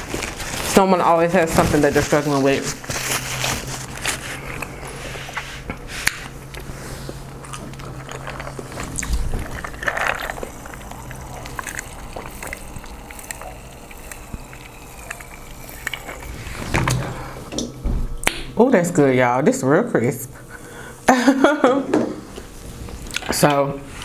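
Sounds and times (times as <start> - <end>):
crunching and sloshing: 0.0 - 18.2
low hum: 2.6 - 18.3
wet chewing and smacking: 3.8 - 17.0.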